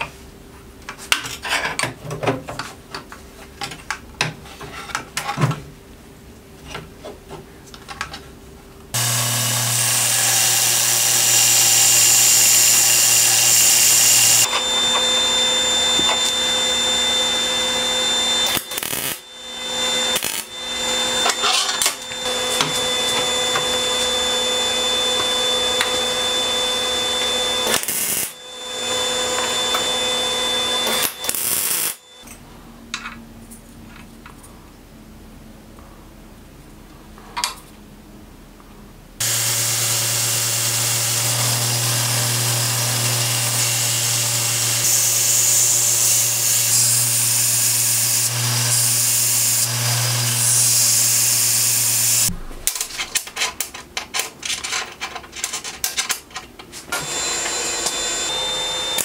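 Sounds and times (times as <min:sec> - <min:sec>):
welding arc crackling: 0:18.4 - 0:19.4, 0:20.0 - 0:21.0, 0:27.6 - 0:28.5, 0:30.8 - 0:32.0.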